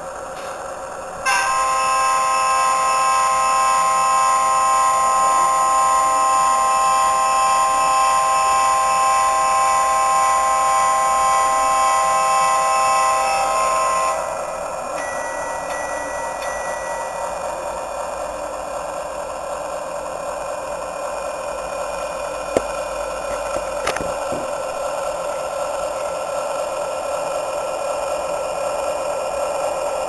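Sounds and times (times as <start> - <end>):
diesel engine: 0.0 - 30.0
air horn blast through small speaker: 1.2 - 14.7.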